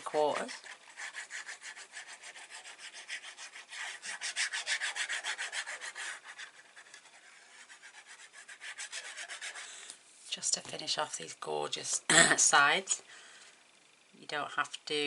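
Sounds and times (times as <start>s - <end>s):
rasping strokes on paper: 0.0s - 9.8s.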